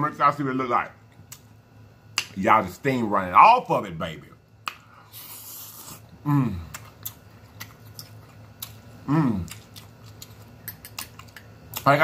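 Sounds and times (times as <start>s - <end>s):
man chewing food: 4.6s - 12.0s
man humming mmm: 5.5s - 6.8s, 9.0s - 9.6s.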